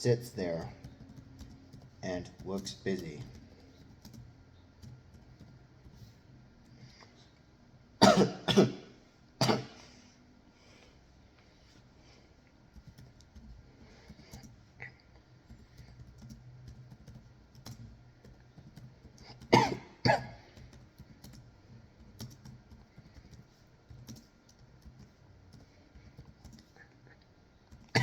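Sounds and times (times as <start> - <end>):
person coughing: 8.0 - 9.9, 19.5 - 20.5.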